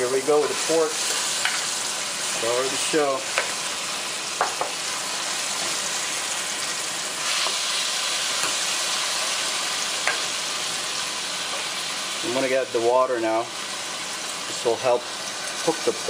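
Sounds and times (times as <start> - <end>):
pork sizzling in a frying pan: 0.0 - 16.0
spatula knocking against pan: 4.4 - 4.7.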